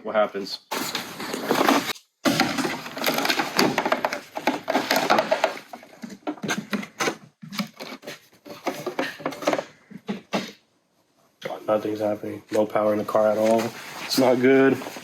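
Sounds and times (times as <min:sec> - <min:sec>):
handling rubbing and clattering: 0:00.7 - 0:10.6.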